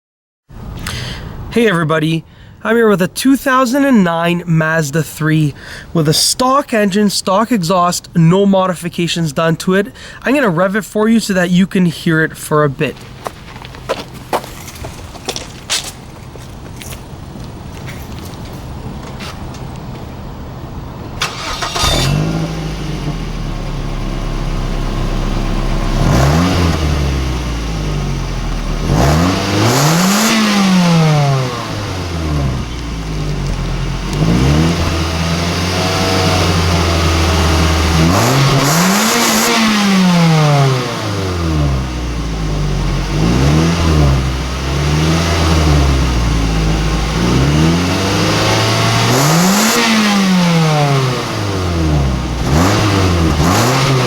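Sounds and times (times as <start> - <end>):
car engine revving: 21.2 - 54.0.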